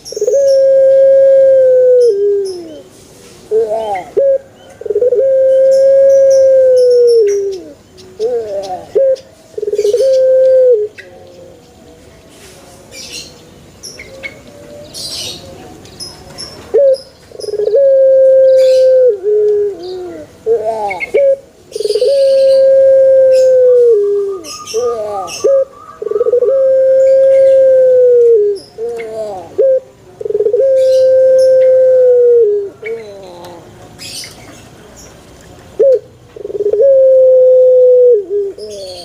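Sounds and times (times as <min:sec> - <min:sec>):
dove cooing: 0:00.0 - 0:02.9, 0:03.5 - 0:11.6, 0:16.7 - 0:34.3, 0:35.8 - 0:39.0
small birds chirping: 0:05.6 - 0:10.3, 0:10.9 - 0:17.8, 0:23.4 - 0:27.7, 0:28.5 - 0:29.6, 0:32.7 - 0:36.8, 0:38.5 - 0:39.0
bird trill: 0:21.8 - 0:27.8.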